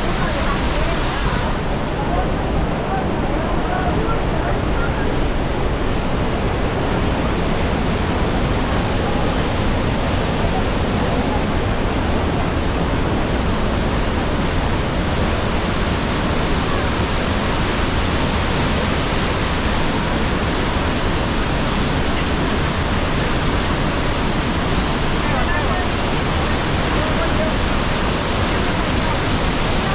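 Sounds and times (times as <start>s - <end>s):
waterfall roaring: 0.0s - 29.9s.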